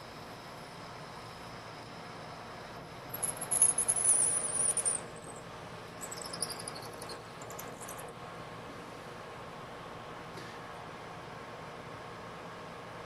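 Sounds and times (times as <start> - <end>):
drill squeaking in metal: 3.2 - 5.0, 6.0 - 8.0.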